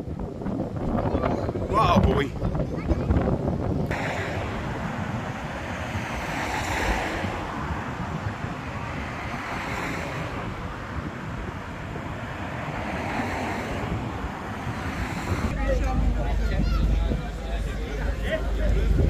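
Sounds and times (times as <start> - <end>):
wind buffeting microphone: 0.0 - 19.0
waves breaking on shore: 3.8 - 19.0.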